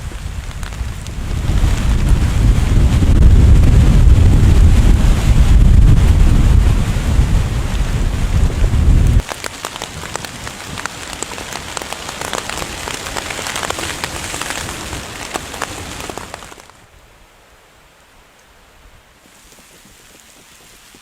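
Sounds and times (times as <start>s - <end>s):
wind buffeting microphone: 0.0s - 9.3s
raindrops hitting a surface: 0.0s - 16.9s, 19.1s - 21.0s
heavy rain: 0.0s - 21.0s.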